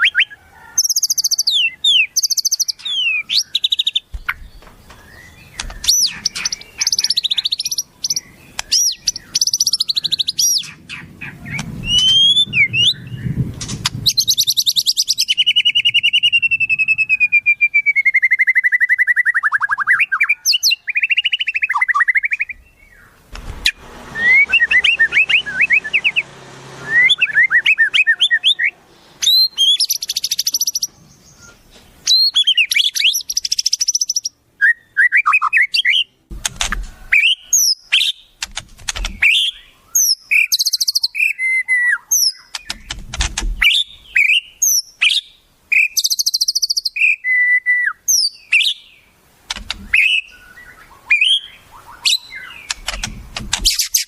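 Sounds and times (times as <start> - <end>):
songbirds chirping and singing: 0.0 - 54.0
low thuds: 4.1 - 6.4, 42.7 - 43.8.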